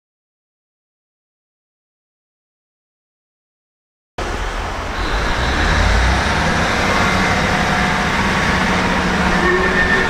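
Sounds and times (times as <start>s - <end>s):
freight train rumbling past: 4.2s - 10.0s.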